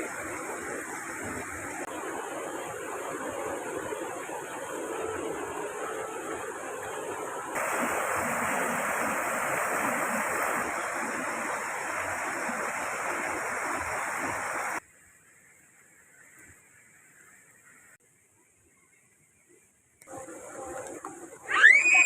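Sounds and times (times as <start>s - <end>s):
rushing water: 0.0s - 14.8s, 20.1s - 22.0s.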